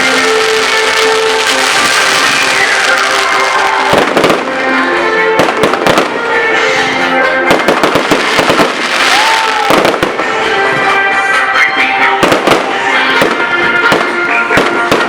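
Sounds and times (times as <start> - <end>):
fireworks and firecrackers banging: 0.0 - 15.0
loud music: 0.0 - 15.0.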